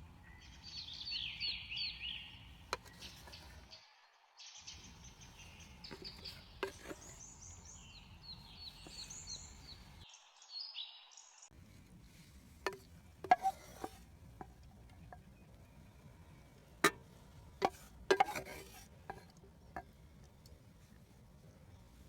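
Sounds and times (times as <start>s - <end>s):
low outdoor hum: 4.7s - 10.0s, 11.5s - 22.0s.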